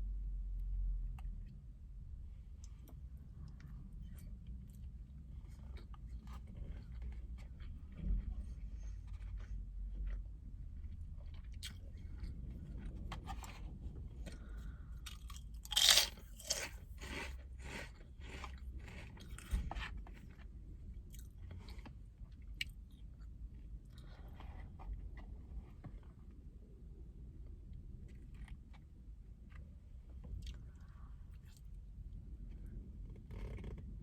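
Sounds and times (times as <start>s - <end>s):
low rumble: 0.0s - 34.0s
person chewing crunchy food: 8.7s - 24.6s.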